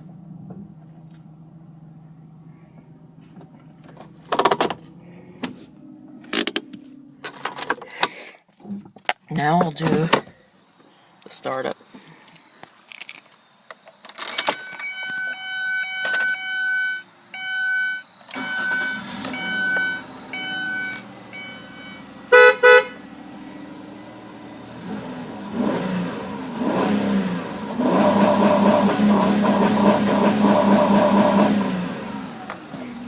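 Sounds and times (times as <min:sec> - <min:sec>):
car engine cranking and idling: 0:00.0 - 0:11.7, 0:12.7 - 0:33.0
dashboard warning chime: 0:14.4 - 0:23.0
car horn honks: 0:14.6 - 0:23.1.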